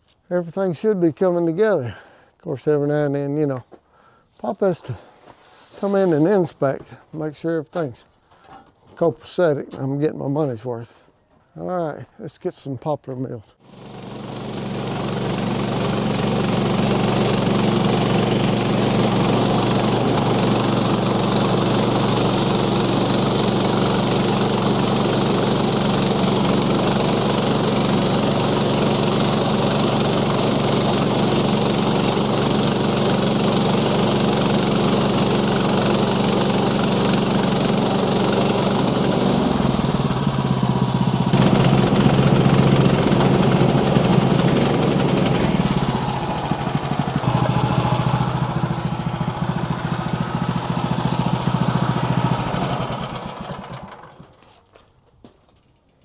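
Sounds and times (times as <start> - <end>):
small gasoline engine running: 13.6 - 54.7.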